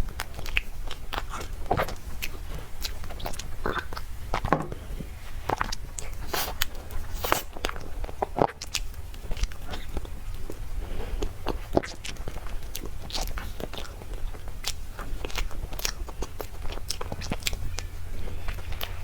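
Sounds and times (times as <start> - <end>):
person chewing soft food: 0.0 - 19.0
steady low hum: 0.0 - 19.0
mouth clicks and smacks: 0.1 - 4.5, 11.2 - 19.0.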